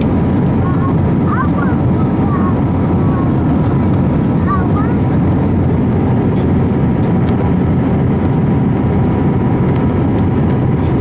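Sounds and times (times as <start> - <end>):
jet engine cabin rumble: 0.0 - 11.0.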